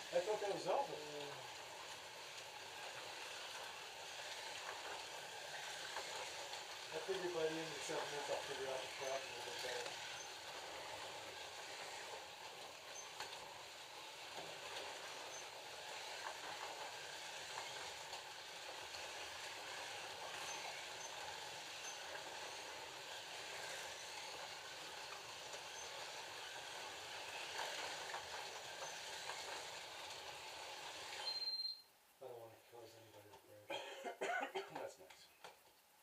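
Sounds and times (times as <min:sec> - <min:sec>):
slot cars whirring: 0:00.0 - 0:31.8
short high beep: 0:31.2 - 0:31.9.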